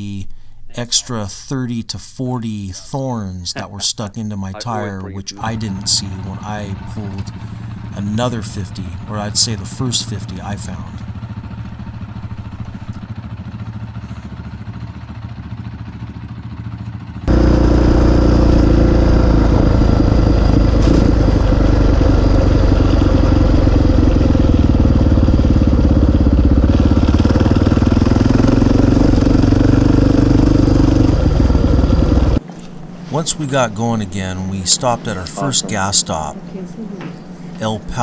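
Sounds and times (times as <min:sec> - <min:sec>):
motorcycle engine running: 0:04.7 - 0:38.0.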